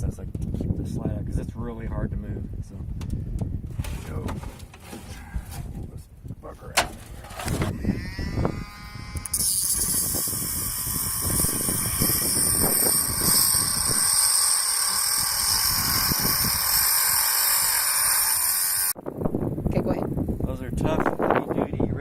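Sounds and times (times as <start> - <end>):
handheld power tool running: 7.3 - 19.0.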